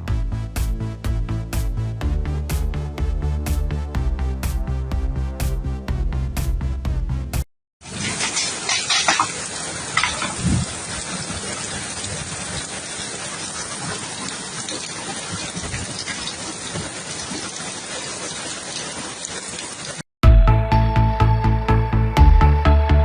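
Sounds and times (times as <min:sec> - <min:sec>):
rushing water: 0:07.8 - 0:20.0.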